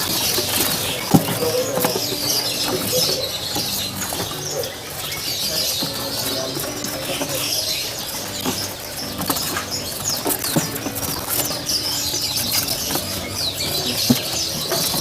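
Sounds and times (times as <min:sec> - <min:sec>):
clicks and rustles from cages: 0:00.0 - 0:15.0
songbirds chirping and whistling: 0:00.0 - 0:15.0.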